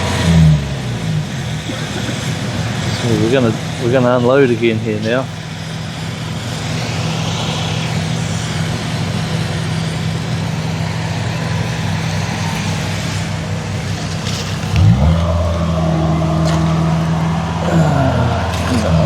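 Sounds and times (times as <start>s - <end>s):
combine harvester engine running: 0.0s - 19.0s.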